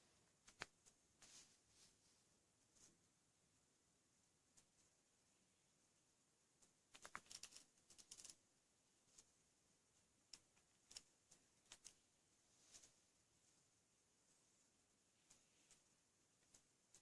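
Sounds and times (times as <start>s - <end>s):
faint small clicks and taps: 0.4s - 1.3s, 6.6s - 8.4s.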